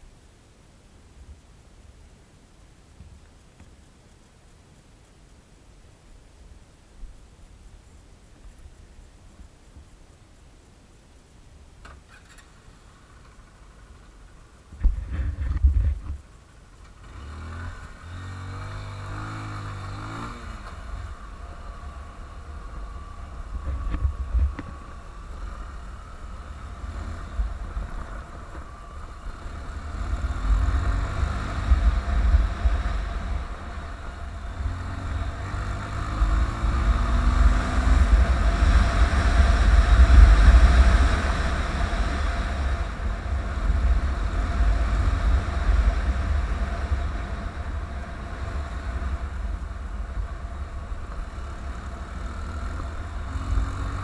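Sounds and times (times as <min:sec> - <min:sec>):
motorcycle engine running: 0:12.1 - 0:54.0.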